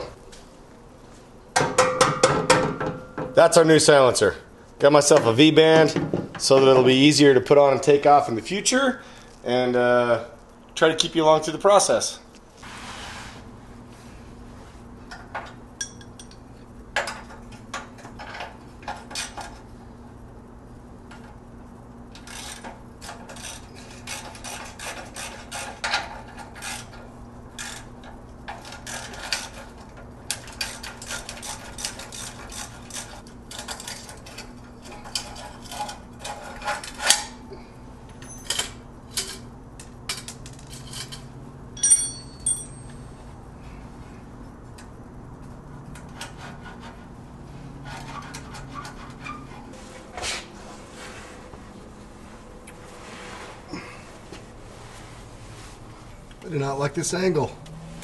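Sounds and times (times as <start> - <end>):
hand tools scraping metal: 22.2 - 27.9, 28.5 - 37.4, 46.0 - 50.4
sharp metal clink: 41.8 - 43.1.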